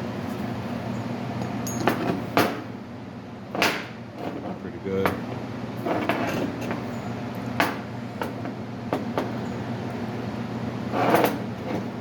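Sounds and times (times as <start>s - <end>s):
workshop hum: 0.0s - 12.0s
metal part knocks and clinks: 1.4s - 2.1s.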